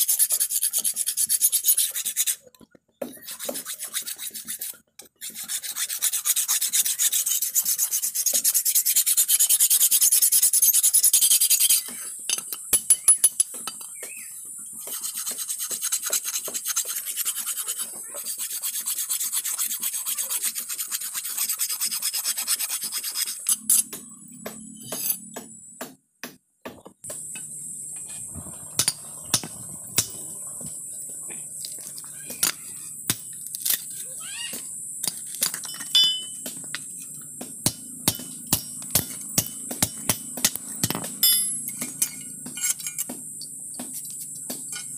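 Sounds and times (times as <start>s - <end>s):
file rasping on steel blade: 0.0s - 2.5s, 3.1s - 12.0s, 14.8s - 23.9s.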